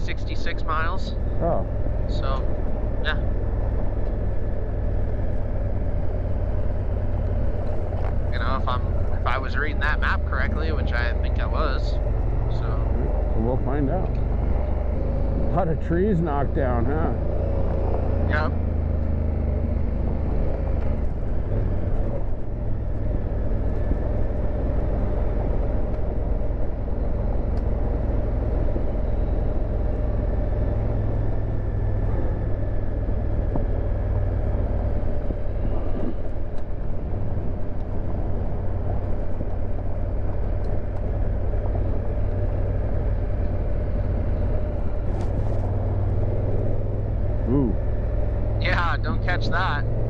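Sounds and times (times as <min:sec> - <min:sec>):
motorcycle engine rumbling: 0:00.0 - 0:50.0.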